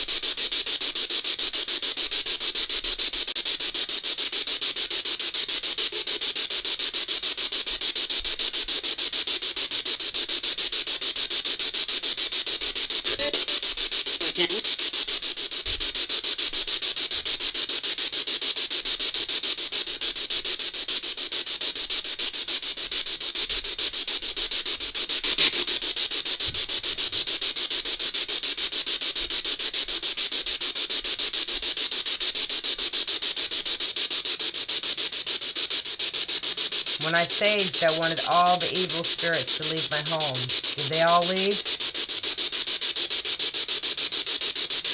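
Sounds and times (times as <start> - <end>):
radio static hiss: 0.0 - 44.9
brief snatches of sound: 25.2 - 25.8.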